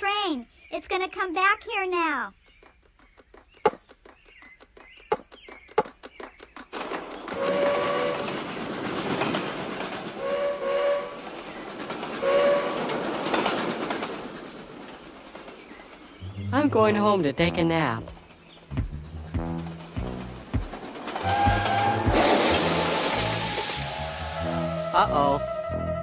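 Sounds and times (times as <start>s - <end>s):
cartoon train chugging: 7.1s - 25.8s
train whistle tooting: 7.3s - 8.4s, 10.2s - 11.2s, 12.2s - 12.9s, 21.2s - 26.0s.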